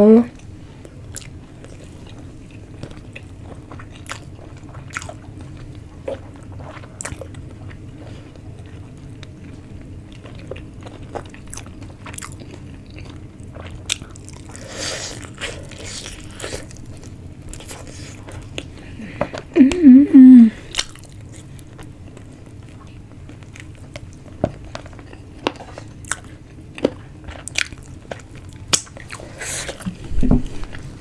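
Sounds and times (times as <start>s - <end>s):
person chewing and crunching: 0.4s - 19.8s, 20.6s - 31.0s.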